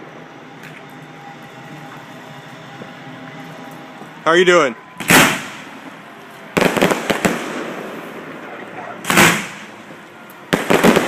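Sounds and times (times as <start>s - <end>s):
fireworks exploding: 5.0s - 11.0s.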